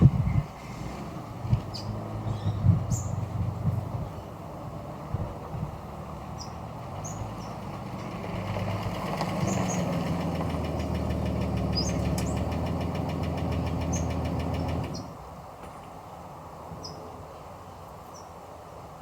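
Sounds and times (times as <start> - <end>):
birds chirping: 1.6 - 4.4, 5.8 - 15.2
engine ticking steadily: 5.0 - 15.2.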